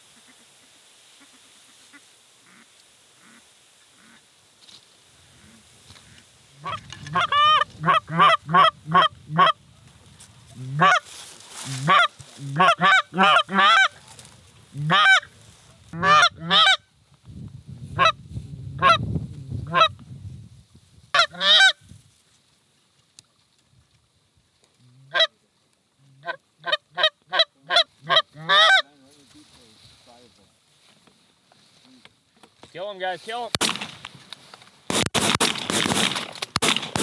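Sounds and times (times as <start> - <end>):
goose honking and clucking: 0.1 - 4.2, 5.3 - 9.6, 10.6 - 14.0, 14.7 - 15.3, 16.0 - 16.8, 21.2 - 21.8, 25.1 - 25.3, 26.2 - 28.9.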